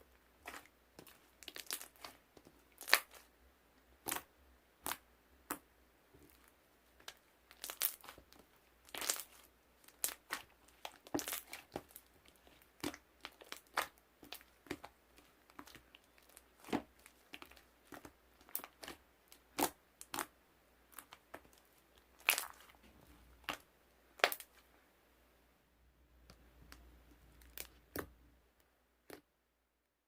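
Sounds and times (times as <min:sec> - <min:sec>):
crinkling and crunching crackles: 0:00.4 - 0:03.3, 0:04.0 - 0:20.3, 0:20.9 - 0:24.7.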